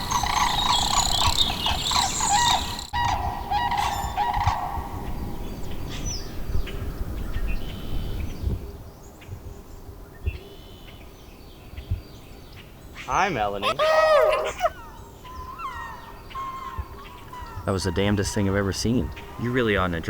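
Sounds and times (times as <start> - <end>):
birds calling: 0.0 - 6.7, 11.8 - 20.0.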